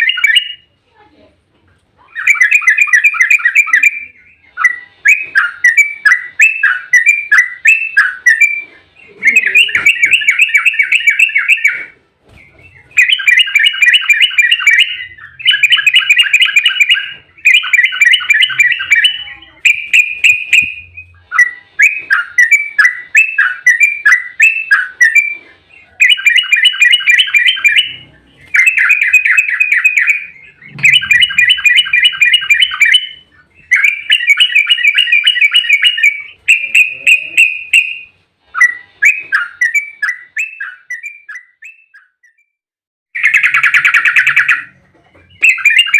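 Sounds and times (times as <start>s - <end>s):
bird singing rapid chattering song: 2.0s - 42.4s, 43.2s - 45.9s
bubbly sliding bird notes: 26.6s - 37.5s.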